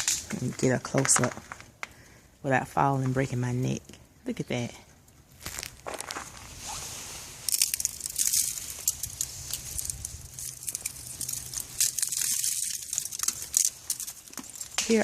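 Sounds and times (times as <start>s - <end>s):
ice crunching and crackling: 0.0s - 2.1s, 5.3s - 15.0s.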